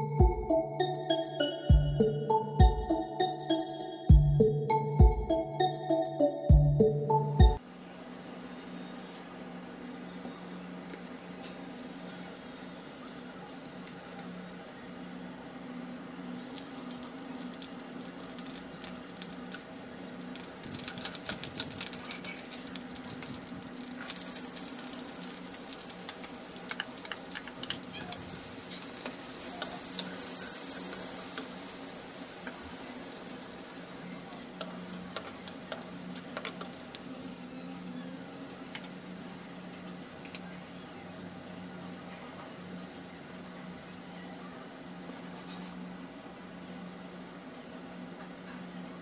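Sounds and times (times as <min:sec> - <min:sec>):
steady low hum: 0:00.0 - 0:03.3
onion sizzling in oil: 0:16.0 - 0:37.0.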